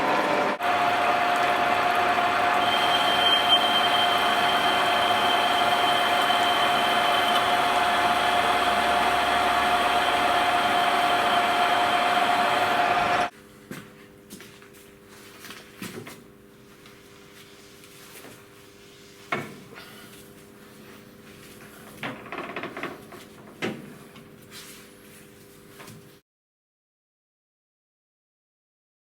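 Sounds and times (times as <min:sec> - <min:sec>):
machine whirring and whining: 0:00.0 - 0:13.3.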